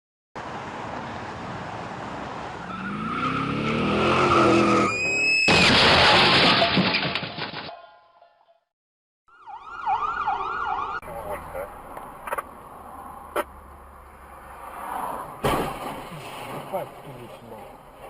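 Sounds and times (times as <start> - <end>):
loud crash impact: 5.4 - 7.7, 15.4 - 16.6
debris clattering: 5.5 - 7.9.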